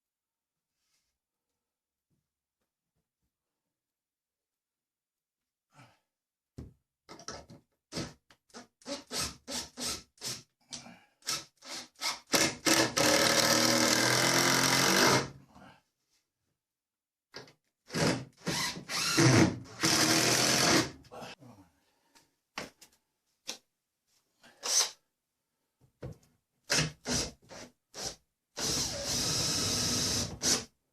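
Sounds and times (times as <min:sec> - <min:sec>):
electric drill boring timber: 0:12.4 - 0:15.3, 0:17.9 - 0:20.9, 0:28.0 - 0:30.6.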